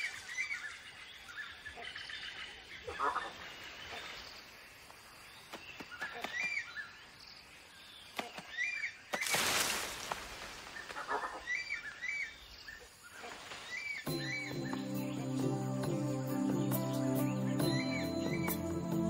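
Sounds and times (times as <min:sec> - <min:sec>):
bird whistled call: 0:13.8 - 0:15.2, 0:17.3 - 0:18.6.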